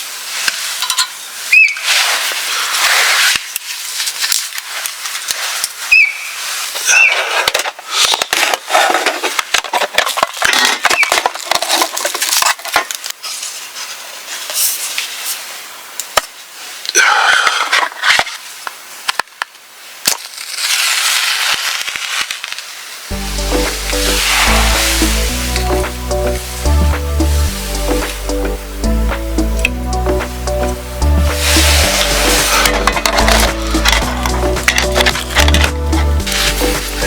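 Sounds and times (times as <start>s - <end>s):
rustling hiss: 0.0s - 37.0s
sharp cracks and crunches: 1.6s - 13.7s, 16.0s - 26.5s, 31.2s - 37.0s
music: 23.1s - 37.0s.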